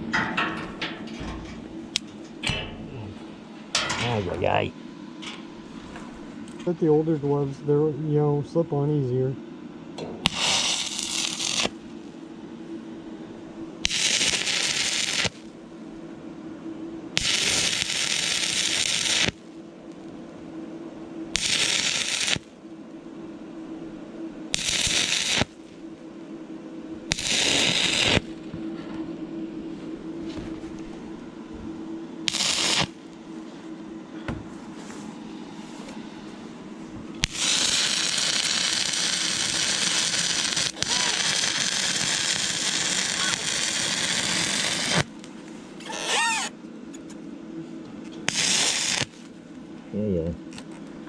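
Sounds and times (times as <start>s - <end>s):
steady low hum: 0.0s - 51.0s
welding arc crackling: 10.2s - 11.9s, 13.8s - 15.6s, 17.2s - 19.4s, 21.3s - 22.5s, 24.5s - 25.8s, 27.1s - 28.5s, 32.3s - 33.2s, 37.2s - 46.5s, 48.3s - 49.3s.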